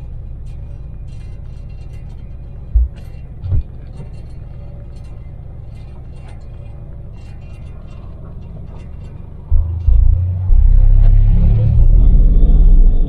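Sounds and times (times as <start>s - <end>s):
engine and road rumble: 0.0s - 13.0s
light rattling ticks: 0.0s - 13.0s
low thumps: 2.7s - 4.1s, 8.3s - 13.0s.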